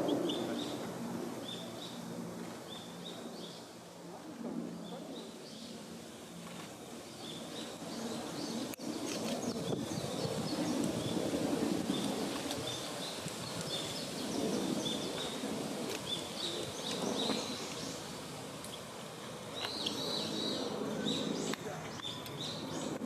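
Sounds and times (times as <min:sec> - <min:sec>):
small birds chirping: 0:07.0 - 0:23.0.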